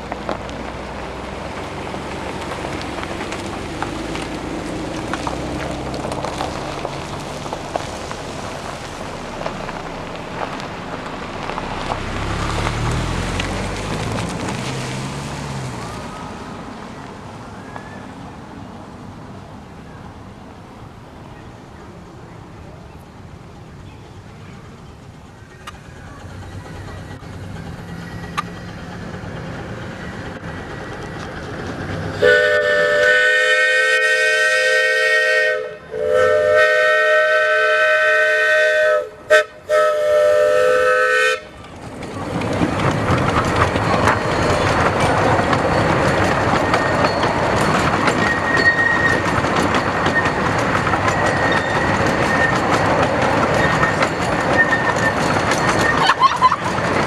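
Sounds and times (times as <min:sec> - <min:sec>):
train running and wheel noise: 0:00.0 - 0:57.0
steam whistle: 0:32.2 - 0:41.5.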